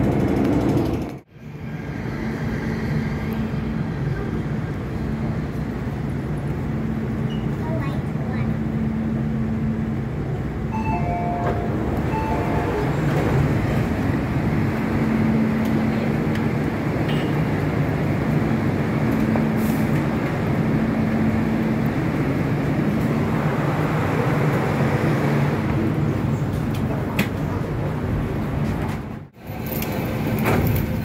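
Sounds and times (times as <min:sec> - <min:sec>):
metro train rumbling: 0:00.0 - 0:31.0
short beeps: 0:10.7 - 0:13.0.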